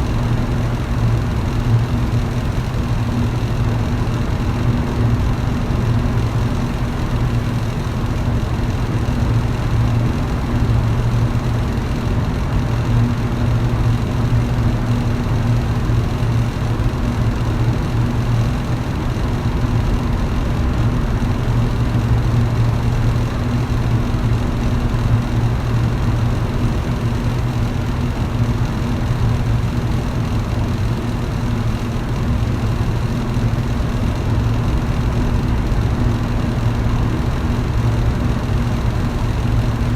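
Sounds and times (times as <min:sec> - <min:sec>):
electric fan running: 0:00.0 - 0:39.9.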